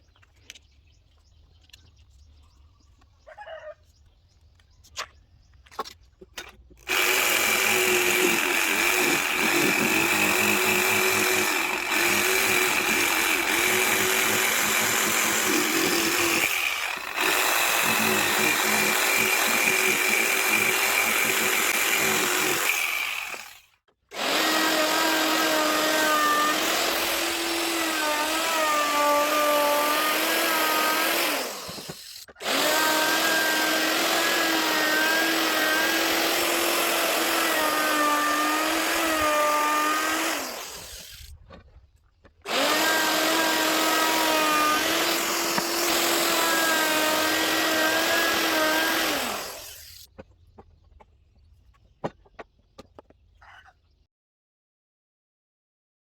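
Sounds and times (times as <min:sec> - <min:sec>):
power tool cutting wood: 0:06.8 - 0:41.3, 0:42.5 - 0:50.1.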